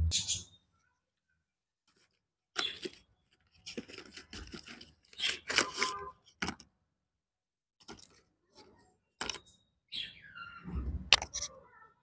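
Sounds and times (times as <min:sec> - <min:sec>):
crisp chewing crunches: 0:01.9 - 0:06.6.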